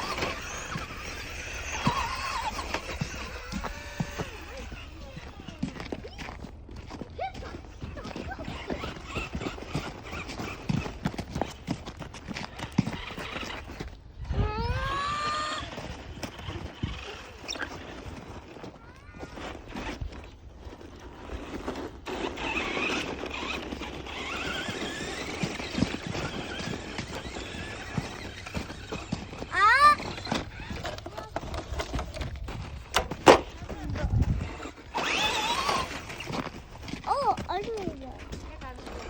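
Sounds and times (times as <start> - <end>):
electric motor whine: 0.0 - 5.9, 32.9 - 36.6
cars churning through snow: 0.0 - 14.0, 14.7 - 39.0.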